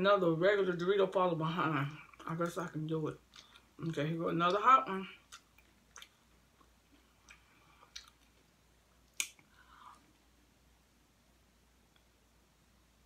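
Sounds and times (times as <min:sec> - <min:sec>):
chewing tortilla chips: 0:03.2 - 0:09.5.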